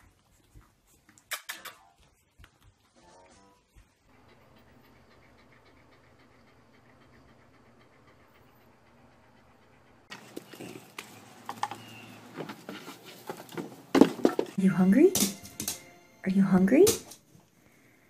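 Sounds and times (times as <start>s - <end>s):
dog panting: 0.0s - 13.5s
goat hooves on wooden ramp: 10.1s - 14.6s.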